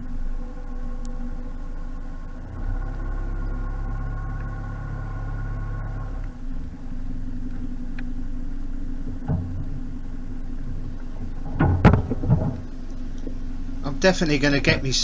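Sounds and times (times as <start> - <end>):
boat engine idling: 0.0 - 15.0
loud clunk: 9.0 - 13.8
small knock: 9.1 - 10.2, 11.1 - 13.4.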